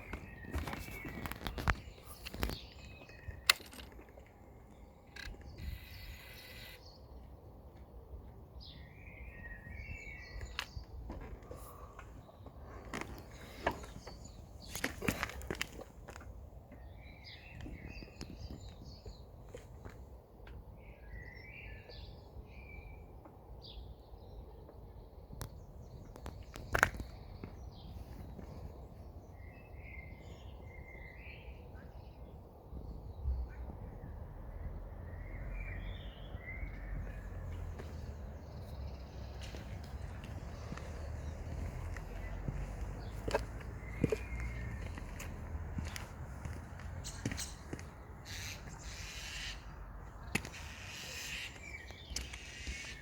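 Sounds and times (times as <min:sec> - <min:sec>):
birds chirping: 0:00.0 - 0:53.0
faint bird chirps: 0:04.8 - 0:07.2.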